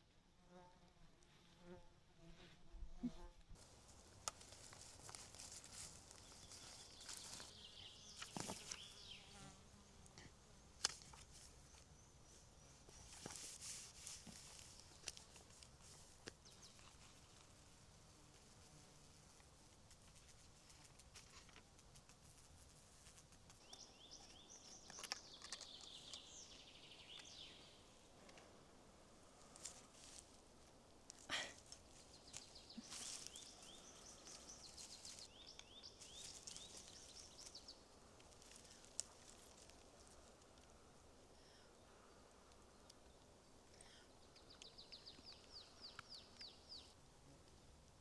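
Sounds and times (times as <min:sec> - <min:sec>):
songbird singing faintly: 0:03.0 - 0:48.0
insects buzzing: 0:03.6 - 0:19.9, 0:23.7 - 0:43.9.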